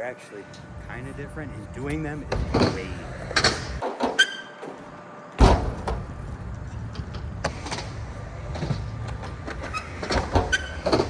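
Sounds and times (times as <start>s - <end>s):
tyres rolling on ramp: 0.7s - 11.0s
bike landing thump: 5.4s - 6.2s.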